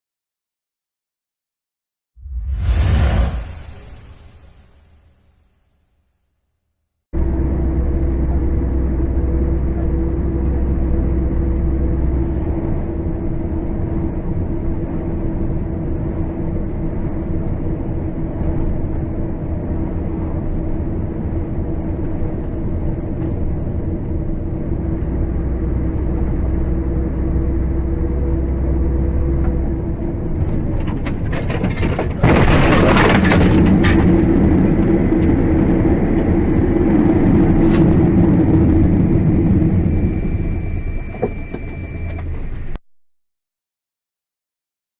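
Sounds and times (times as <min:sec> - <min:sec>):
sudden loud burst of noise: 0:02.2 - 0:05.6
car engine and road drone: 0:07.2 - 0:42.8.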